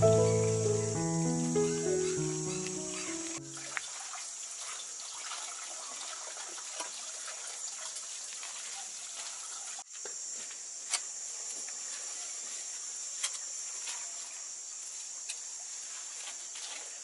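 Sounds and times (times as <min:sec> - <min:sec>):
running water hissing: 0:00.0 - 0:09.9.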